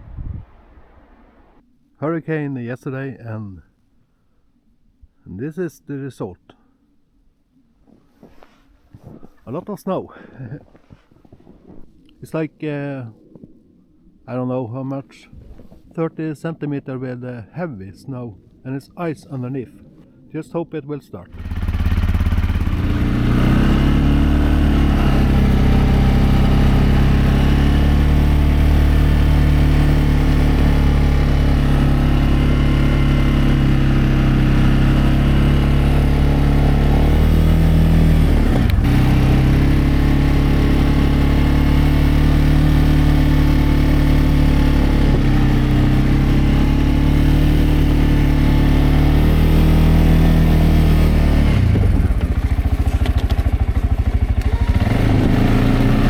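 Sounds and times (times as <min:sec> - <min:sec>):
atv engine running: 0:21.3 - 0:56.0.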